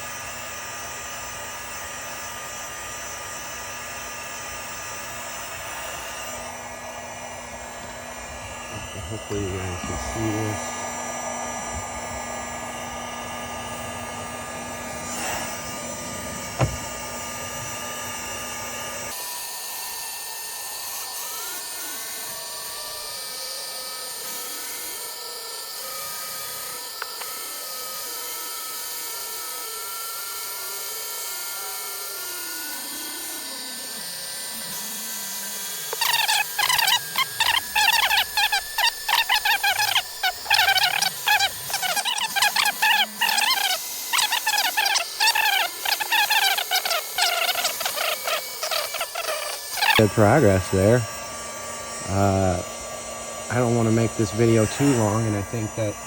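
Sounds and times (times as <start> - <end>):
heat pen fan blowing: 0.0 - 19.2, 35.9 - 56.0
loud fast-pulsing buzz: 0.0 - 56.0.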